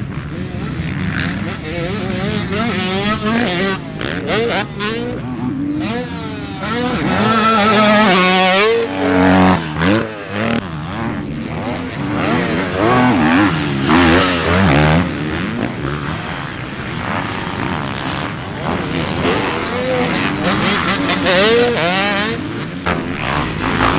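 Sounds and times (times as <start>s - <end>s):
dirt bike engine revving: 0.0s - 23.9s.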